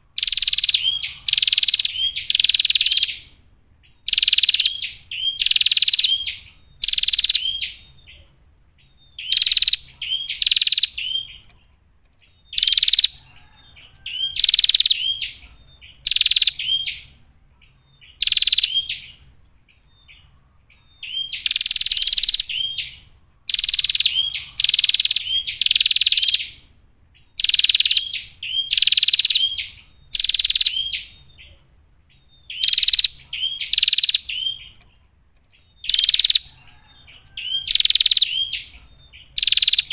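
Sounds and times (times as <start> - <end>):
bird rasping high calls: 0.2 - 3.3, 20.8 - 26.6, 32.4 - 34.7, 35.8 - 39.9.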